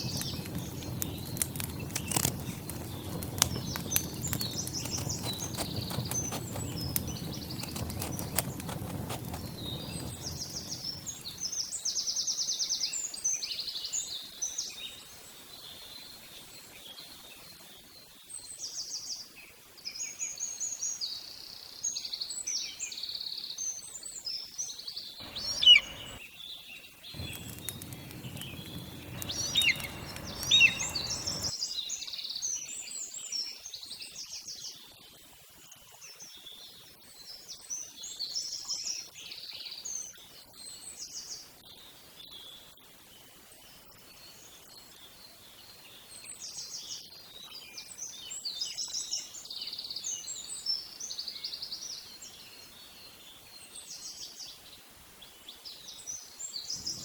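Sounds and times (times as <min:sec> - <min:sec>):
sharp loud bird calls: 0:25.2 - 0:26.2, 0:27.2 - 0:31.5
songbirds chirping and singing: 0:25.2 - 0:26.2, 0:27.2 - 0:31.5.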